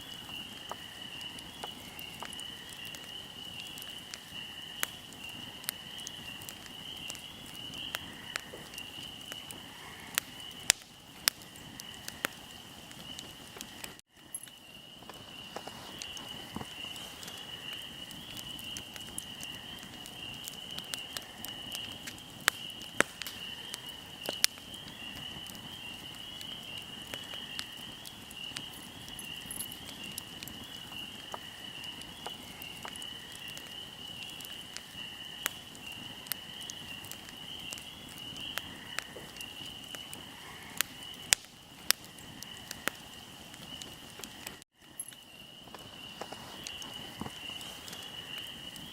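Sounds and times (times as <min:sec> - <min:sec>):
wood fire crackling and popping: 0:00.0 - 0:48.9
high-pitched insect trill: 0:28.6 - 0:33.6.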